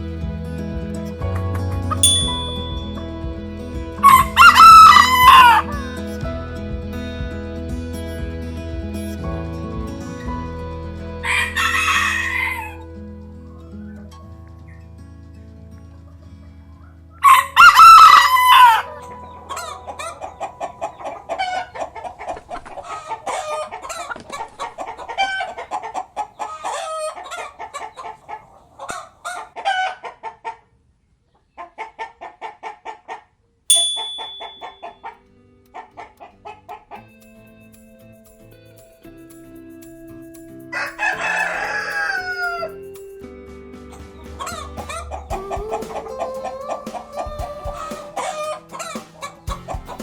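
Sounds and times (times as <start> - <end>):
rooster crowing: 17.2 - 19.0, 40.8 - 42.8
chickens clucking: 18.8 - 30.7, 44.2 - 50.0.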